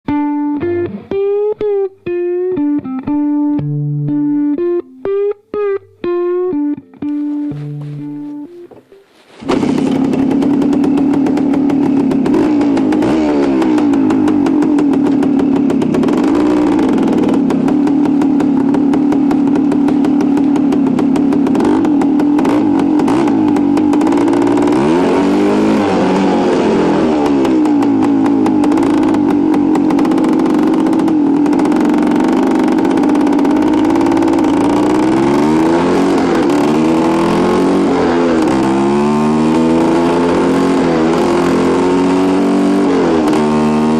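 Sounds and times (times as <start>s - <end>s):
two-stroke motorcycle engine revving: 9.4s - 43.9s.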